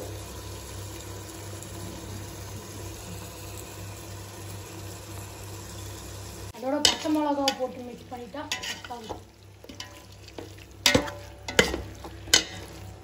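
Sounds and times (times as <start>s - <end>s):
food sizzling in a pot: 0.0s - 13.0s.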